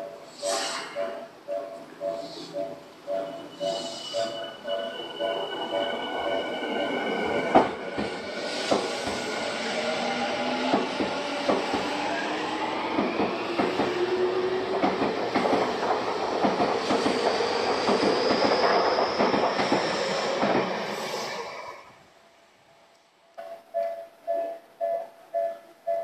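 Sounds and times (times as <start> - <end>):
level-crossing bell ringing: 1.0 - 7.6, 23.4 - 26.0
train wheels clattering on rails: 7.4 - 9.4, 10.6 - 12.2, 12.8 - 20.9.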